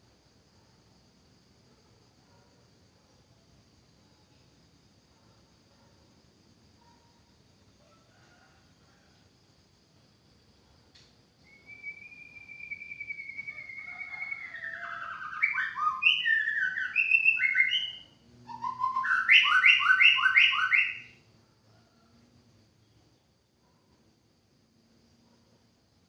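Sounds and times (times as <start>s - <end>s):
bird singing whistled notes: 11.4s - 21.2s.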